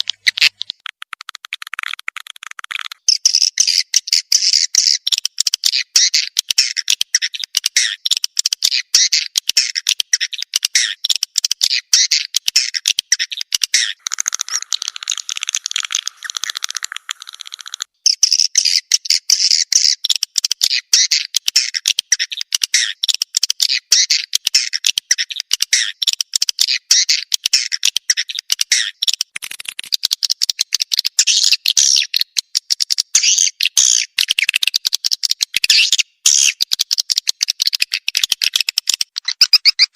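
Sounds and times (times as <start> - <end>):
swiftlet calls chirping: 13.2 - 18.5.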